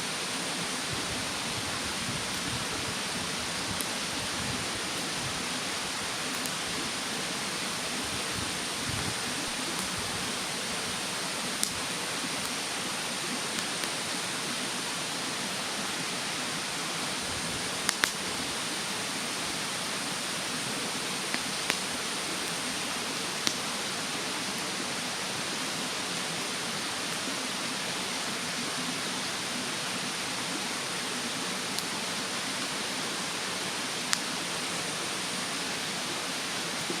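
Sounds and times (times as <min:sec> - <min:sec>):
mountain stream rushing: 0:00.0 - 0:37.0
wood fire crackling: 0:00.8 - 0:14.1, 0:17.2 - 0:18.7, 0:19.5 - 0:23.6, 0:34.0 - 0:34.9.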